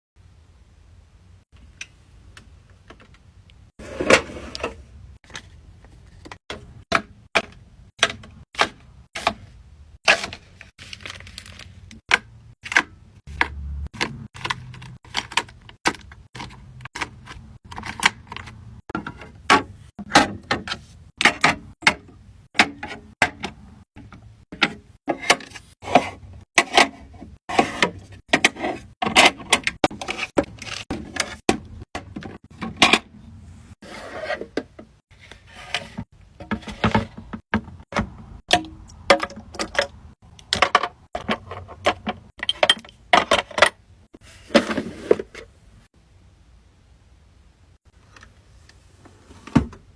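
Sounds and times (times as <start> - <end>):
small containers clicking and knocking: 10.1 - 20.6, 36.3 - 43.8.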